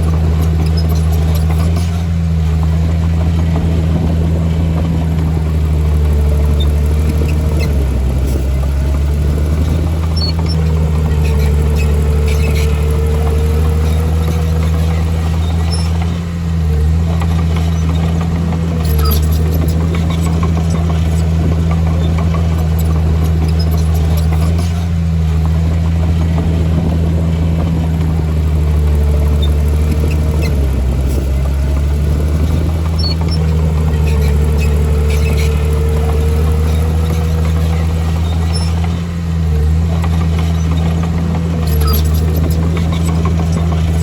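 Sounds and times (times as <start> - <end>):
heavy diesel engine under load: 0.0 - 44.0.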